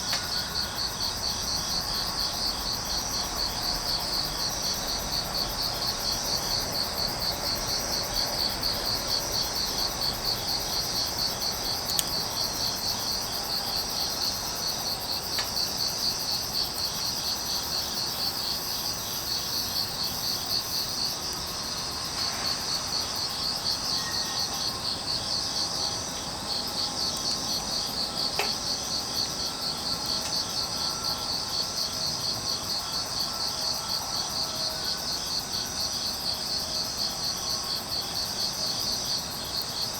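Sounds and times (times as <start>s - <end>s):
crickets chirping in trills: 0.0s - 39.9s
wood fire crackles: 8.5s - 21.5s.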